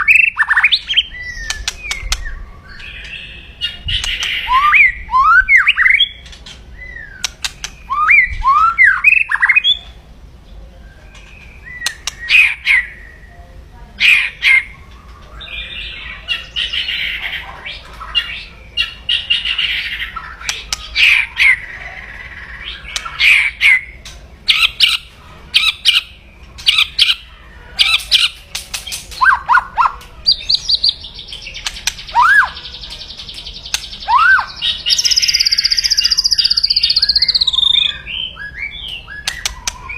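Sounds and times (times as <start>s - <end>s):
bird crackling clicks and whistles: 7.2s - 7.8s, 11.2s - 12.3s, 27.8s - 32.2s, 32.9s - 34.0s, 38.9s - 39.8s.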